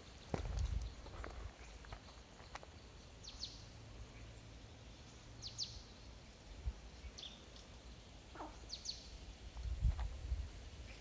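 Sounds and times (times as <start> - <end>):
bird calls with falling notes: 5.0 - 9.2.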